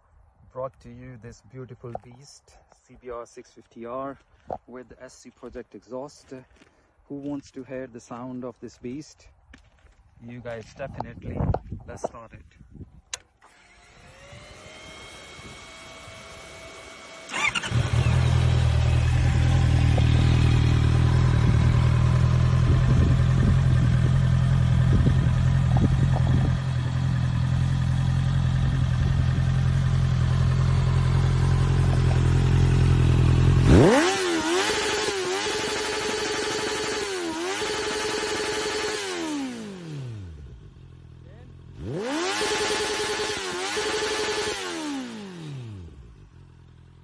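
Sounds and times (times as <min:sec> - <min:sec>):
motorcycle engine idling and revving: 0:10.5 - 0:47.0
motorcycle starter cranking: 0:16.9 - 0:19.7.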